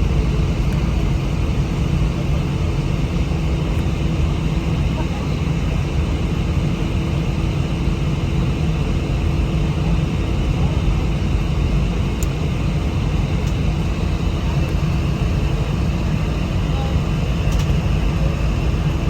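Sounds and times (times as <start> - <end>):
jet engines low rumble: 0.0 - 19.0.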